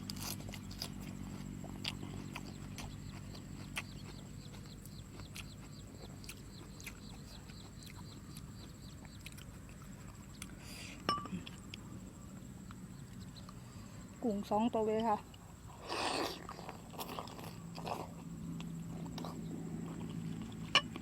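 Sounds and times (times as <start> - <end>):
chewing and mouth clicks: 0.0 - 11.9, 15.0 - 21.0
utensil clink: 11.1 - 11.4.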